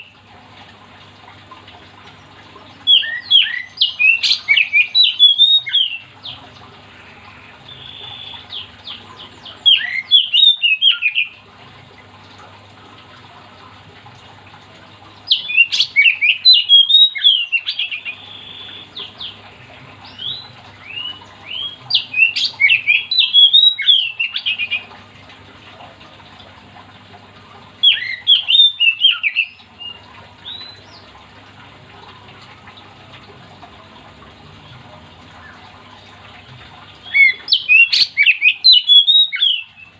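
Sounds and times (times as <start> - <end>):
bird singing whistled phrases: 2.9 - 6.1, 9.7 - 11.4, 15.3 - 19.4, 20.1 - 24.9, 27.8 - 31.0, 37.0 - 39.9.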